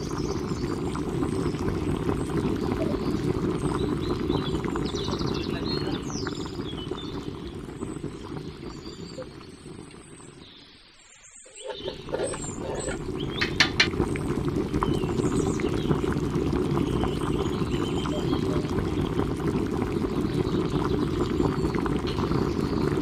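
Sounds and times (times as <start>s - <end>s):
rice boiling and bubbling: 0.0s - 23.0s
metal spoon knocking pot: 11.7s - 14.0s.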